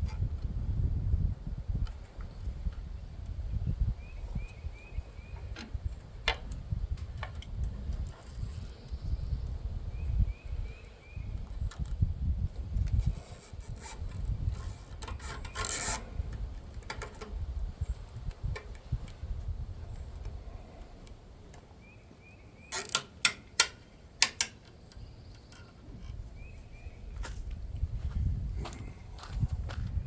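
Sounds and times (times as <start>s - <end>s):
wind buffeting microphone: 0.0s - 22.0s, 25.0s - 30.0s
clicks and knocks of hand work: 12.8s - 19.2s, 22.7s - 26.2s.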